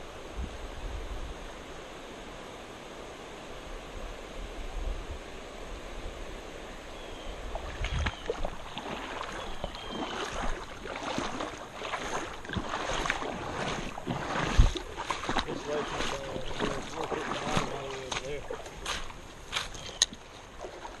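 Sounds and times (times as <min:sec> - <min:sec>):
wind on microphone: 0:00.0 - 0:01.8, 0:03.6 - 0:06.6, 0:07.2 - 0:20.2
creek water flowing: 0:00.0 - 0:21.0
crunching footsteps: 0:07.6 - 0:21.0.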